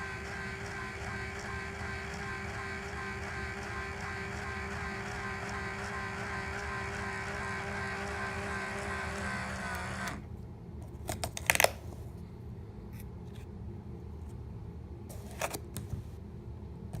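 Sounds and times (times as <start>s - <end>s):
small electric motor humming: 0.0s - 10.2s.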